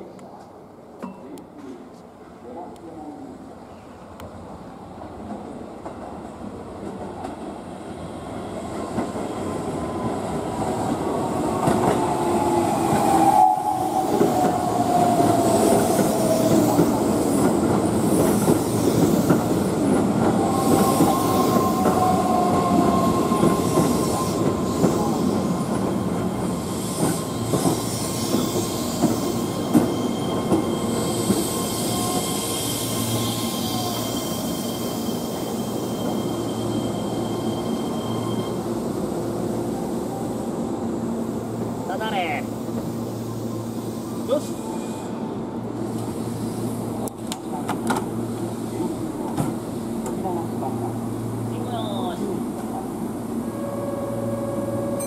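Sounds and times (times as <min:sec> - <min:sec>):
high brake squeal: 0:20.4 - 0:38.9.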